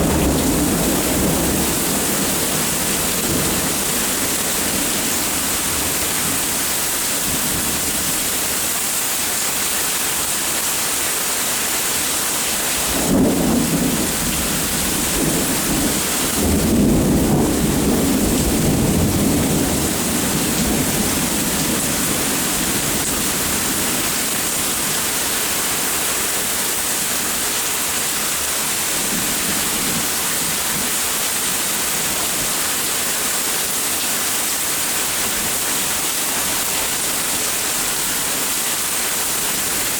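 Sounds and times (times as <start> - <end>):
rolling thunder: 0.0 - 8.2, 12.8 - 24.8
steady rain: 0.0 - 39.9.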